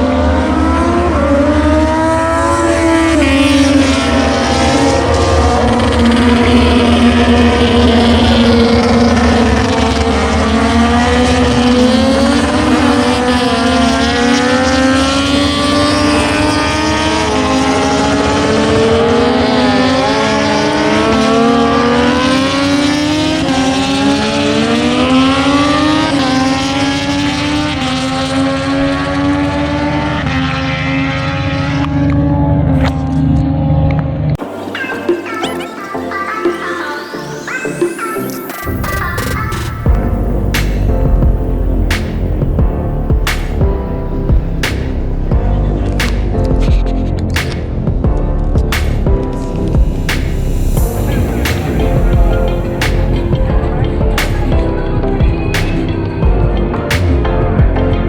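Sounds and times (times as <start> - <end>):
racing motorcycles high-revving: 0.0 - 34.4, 39.8 - 58.0
steady low rumble: 39.9 - 58.0.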